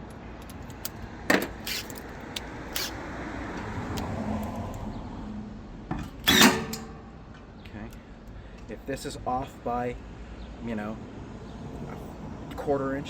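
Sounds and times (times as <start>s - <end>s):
rough scraping of metal parts: 2.7s - 3.0s, 6.0s - 7.0s.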